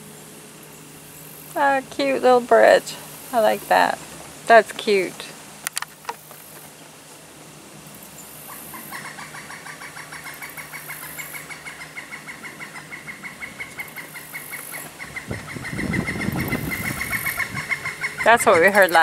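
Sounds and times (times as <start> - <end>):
bird clucking call: 8.4 - 19.0.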